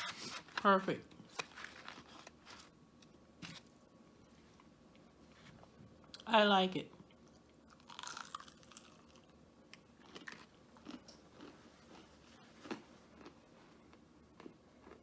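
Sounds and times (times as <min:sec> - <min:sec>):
chewing crunchy food: 0:07.1 - 0:15.0.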